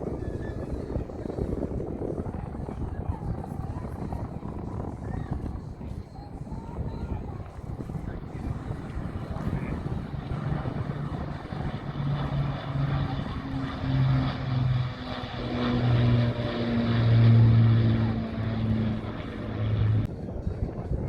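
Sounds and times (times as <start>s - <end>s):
propeller aircraft engine drone: 0.0s - 21.0s.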